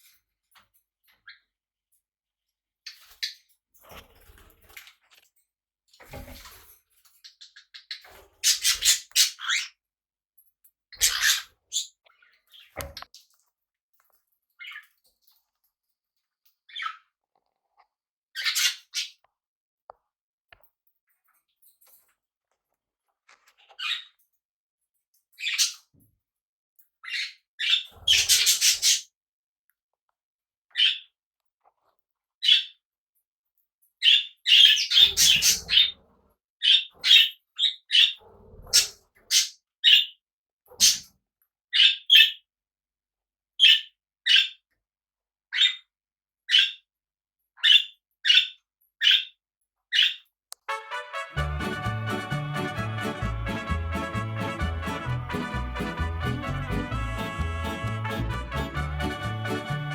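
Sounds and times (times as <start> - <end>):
parrots chirping and squawking: 7.3 - 9.8, 11.0 - 13.0, 16.7 - 17.1, 18.4 - 19.2, 23.5 - 24.2, 25.4 - 25.9, 27.0 - 29.1, 30.7 - 31.1, 34.0 - 36.0, 36.6 - 40.1, 40.7 - 41.1, 41.7 - 42.4, 43.6 - 44.6, 45.5 - 45.9, 46.5 - 46.8, 47.6 - 49.3, 49.9 - 59.9.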